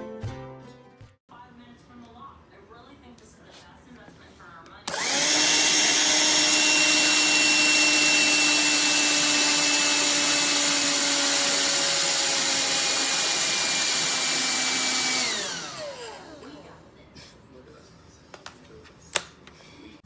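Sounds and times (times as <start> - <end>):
handheld vacuum whining: 4.9 - 16.6.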